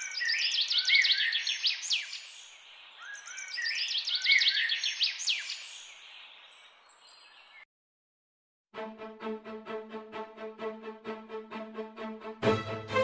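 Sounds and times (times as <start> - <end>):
bird singing rapid high chirps: 0.0 - 7.6.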